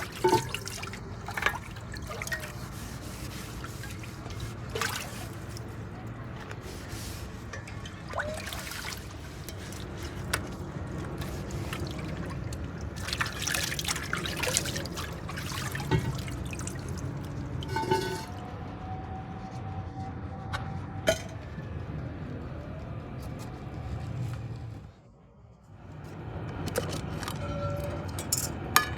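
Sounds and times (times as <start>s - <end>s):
liquid trickling and dripping: 0.0s - 18.4s, 26.5s - 28.9s.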